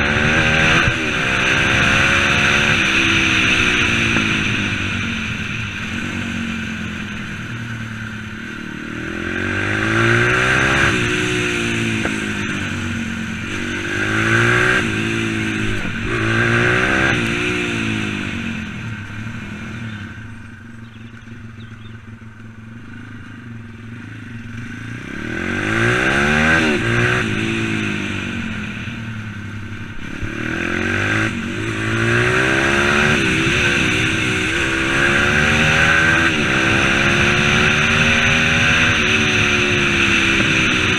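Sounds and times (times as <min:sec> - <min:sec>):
pit bike engine revving: 0:00.0 - 0:22.2, 0:22.8 - 0:40.9.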